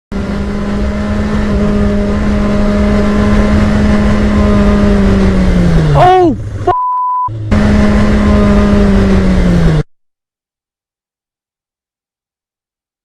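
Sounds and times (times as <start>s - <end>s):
motorcycle engine running: 0.1s - 6.7s, 7.3s - 9.8s.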